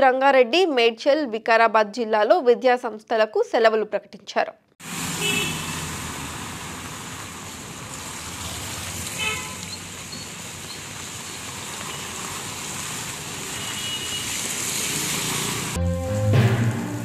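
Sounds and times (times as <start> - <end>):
heavy rain hissing: 4.8 - 15.8
vehicle horn toot: 5.2 - 5.8, 9.2 - 9.7, 13.6 - 14.4.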